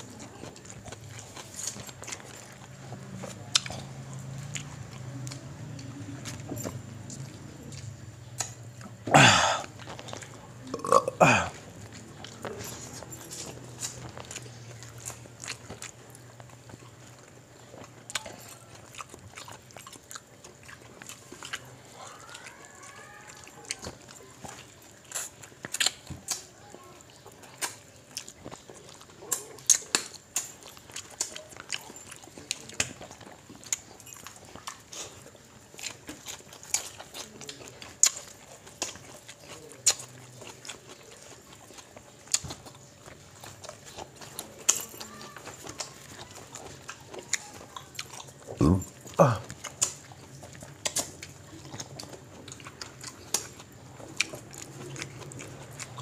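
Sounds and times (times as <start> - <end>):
wet chewing and lip smacks: 0.0 - 56.0
short vocal sounds: 9.0 - 9.7, 10.7 - 11.6, 48.6 - 49.5.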